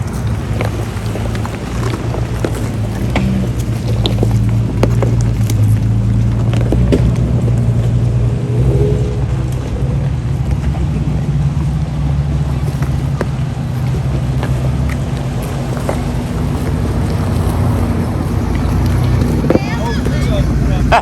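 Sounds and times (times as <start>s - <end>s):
vehicle engine at low revs: 0.0s - 21.0s.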